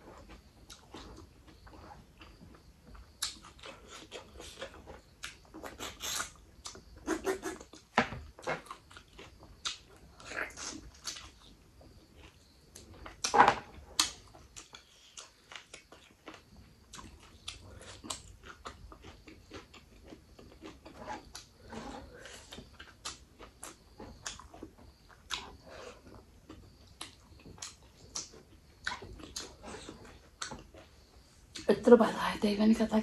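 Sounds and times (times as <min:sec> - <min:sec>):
chewing with wet lip smacks: 0:14.0 - 0:21.5, 0:22.2 - 0:30.9.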